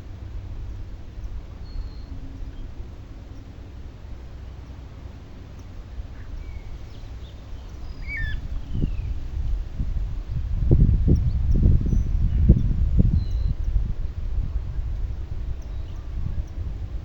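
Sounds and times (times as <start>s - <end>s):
low rumble: 0.0s - 17.0s
bird chirps and whistles: 7.9s - 9.1s.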